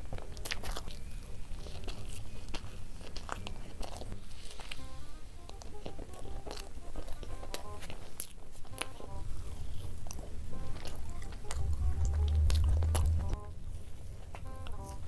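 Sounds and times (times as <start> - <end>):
chocolate bites and chewing: 0.0 - 15.0
light background music: 0.0 - 15.0
deep low hum: 10.7 - 15.0.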